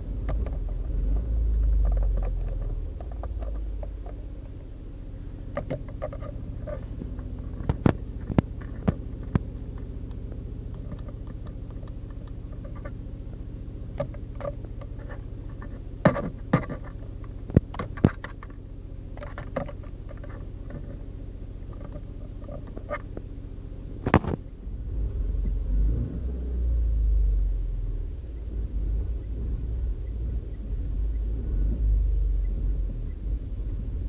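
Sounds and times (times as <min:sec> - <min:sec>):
car engine idling: 0:00.0 - 0:34.0
sharp clicks: 0:07.6 - 0:13.0.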